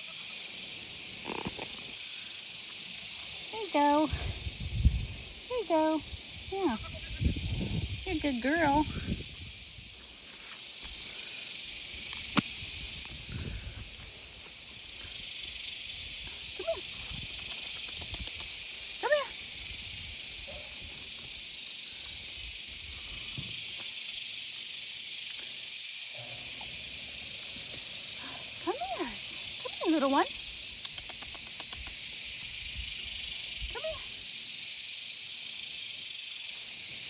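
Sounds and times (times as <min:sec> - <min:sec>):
cicadas droning: 0:00.0 - 0:37.0
sharp click: 0:12.1 - 0:12.6.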